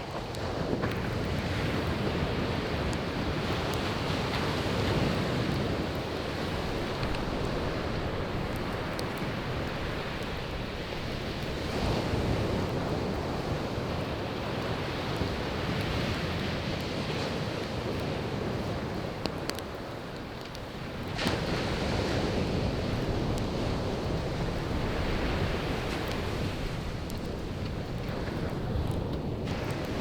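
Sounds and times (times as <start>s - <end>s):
crackling firewood: 0.0s - 30.0s
sea waves washing ashore: 0.0s - 30.0s.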